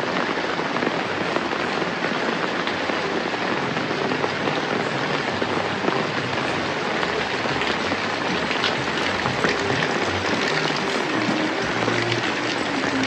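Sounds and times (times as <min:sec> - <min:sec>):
rain drops pattering: 0:00.0 - 0:13.0.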